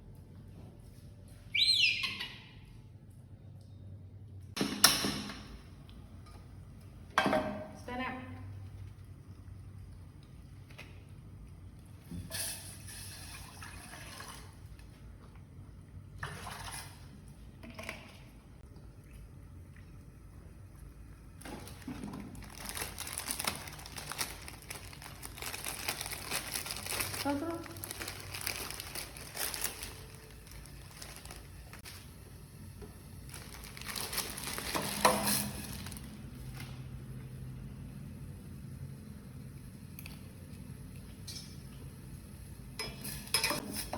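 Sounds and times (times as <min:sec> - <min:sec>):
water pouring: 0:12.6 - 0:14.9, 0:16.1 - 0:21.0
crinkling and rustling: 0:21.4 - 0:32.2, 0:32.8 - 0:36.8.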